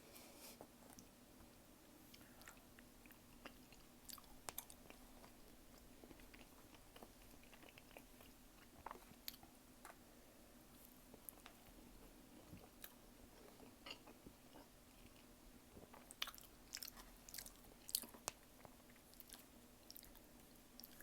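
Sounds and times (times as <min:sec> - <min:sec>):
chewing and mouth sounds: 0:02.1 - 0:10.0, 0:12.3 - 0:21.0.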